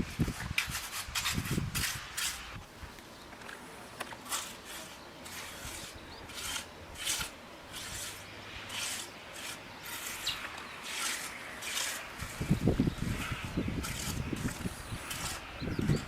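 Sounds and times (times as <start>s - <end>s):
rasping scraping strokes: 0.0s - 2.6s, 4.1s - 16.0s.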